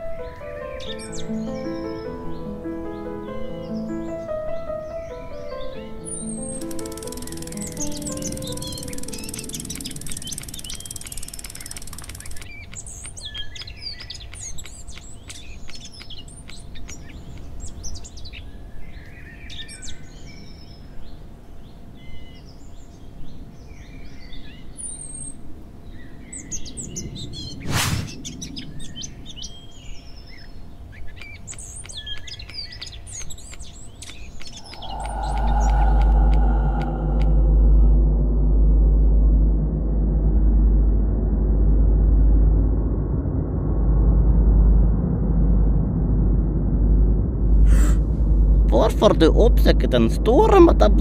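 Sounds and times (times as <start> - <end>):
birds chirping: 0.0 - 20.2, 29.2 - 38.0
light clicks: 6.6 - 13.3
low rumbling drone: 34.4 - 51.0.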